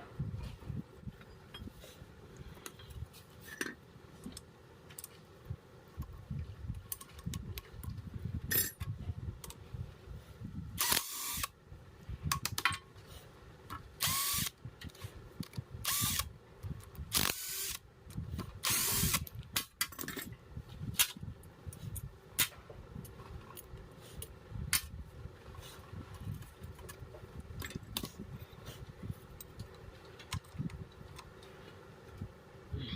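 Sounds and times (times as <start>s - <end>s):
small electric motor whirring: 10.8s - 11.5s, 14.0s - 14.6s, 15.8s - 16.3s, 17.1s - 17.8s, 18.6s - 19.3s.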